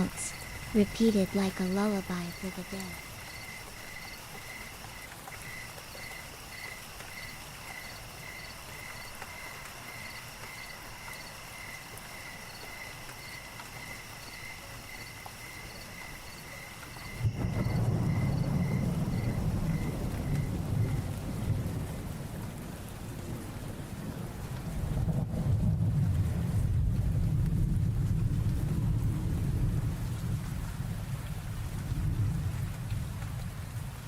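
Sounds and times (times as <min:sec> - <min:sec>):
crickets chirping: 0:00.0 - 0:21.2
heavy rain: 0:00.0 - 0:34.0
thunder rumble: 0:15.6 - 0:34.0.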